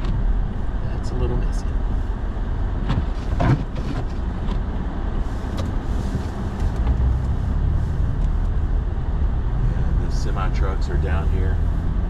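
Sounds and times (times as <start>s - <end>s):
truck engine and tyre rumble: 0.0s - 12.0s.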